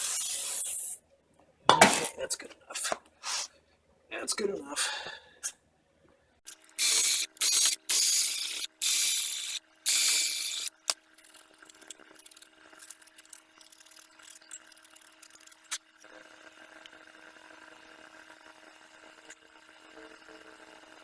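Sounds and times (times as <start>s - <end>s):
hissing spray bursts: 0.0s - 1.0s, 6.7s - 11.0s
parts clicking and rustling: 6.5s - 15.8s.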